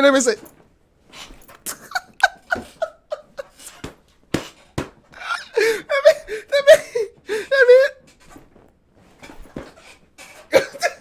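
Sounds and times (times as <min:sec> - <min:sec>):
man laughing hard: 0:01.6 - 0:03.7, 0:05.2 - 0:08.1.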